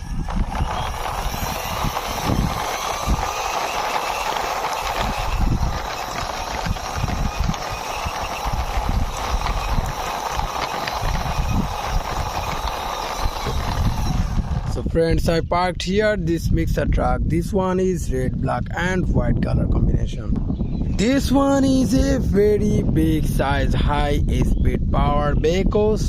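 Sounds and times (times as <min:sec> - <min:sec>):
toy truck wheels rattling: 0:00.0 - 0:14.9.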